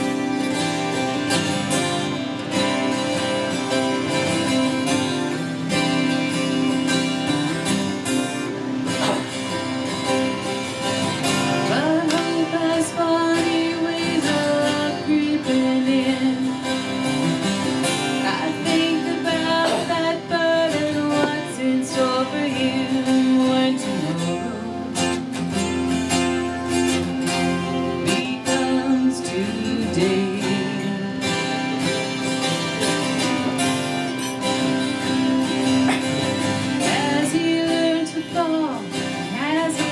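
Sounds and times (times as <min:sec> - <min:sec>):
acoustic guitar: 0:00.0 - 0:39.9
woman singing: 0:11.4 - 0:17.2, 0:18.0 - 0:25.2, 0:27.2 - 0:32.1, 0:36.7 - 0:39.9.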